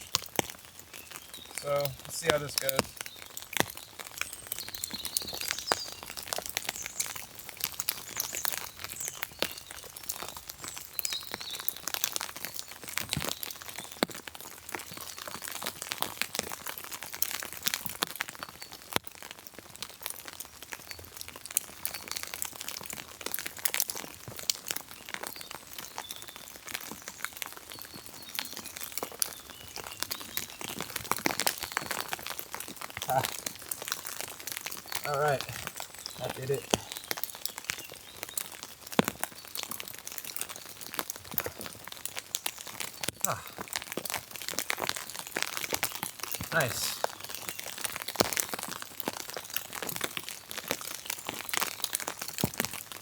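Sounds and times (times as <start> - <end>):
cord rustling and crinkling: 26.5 - 53.0.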